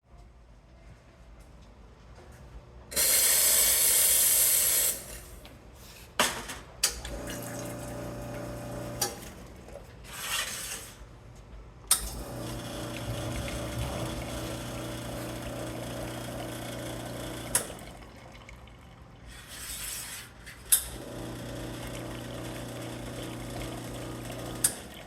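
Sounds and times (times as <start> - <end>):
espresso machine steam hiss: 3.0 - 5.3
pump humming: 7.1 - 9.8, 12.0 - 19.3, 20.9 - 25.0
water flowing: 12.2 - 19.6.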